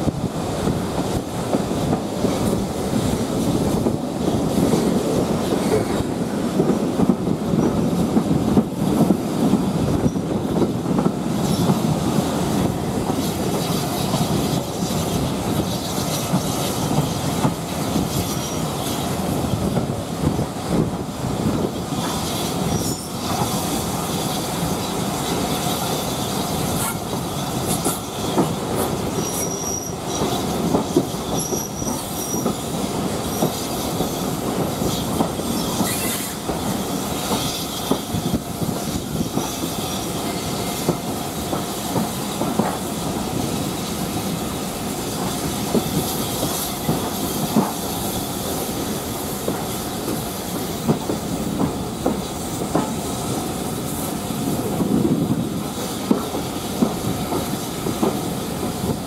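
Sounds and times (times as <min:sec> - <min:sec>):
train wheels on rails: 0:00.0 - 0:59.0
high wheel squeals: 0:29.2 - 0:30.3, 0:31.3 - 0:32.6, 0:35.5 - 0:37.9.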